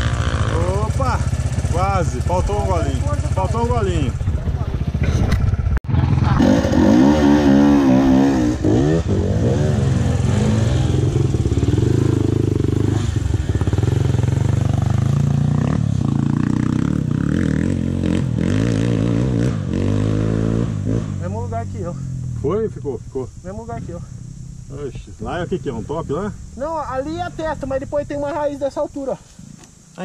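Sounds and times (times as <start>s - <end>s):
dirt bike engine revving: 0.0s - 28.6s.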